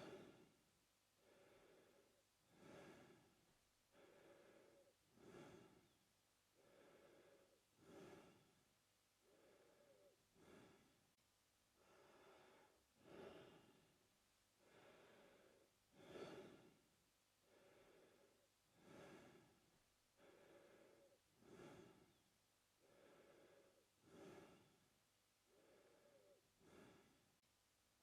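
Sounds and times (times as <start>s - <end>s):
man breathing through mouth: 0.0s - 0.5s, 1.2s - 6.0s, 6.6s - 8.6s, 9.2s - 11.0s, 11.8s - 13.8s, 14.6s - 16.8s, 17.4s - 19.6s, 20.2s - 22.2s, 22.8s - 24.8s, 25.5s - 27.2s.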